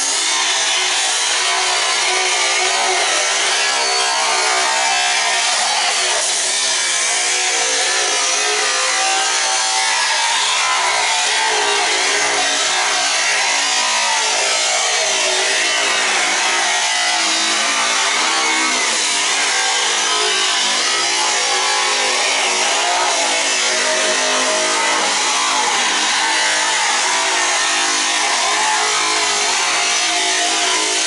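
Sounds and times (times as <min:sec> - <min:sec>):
power tool cutting: 0:00.0 - 0:31.0.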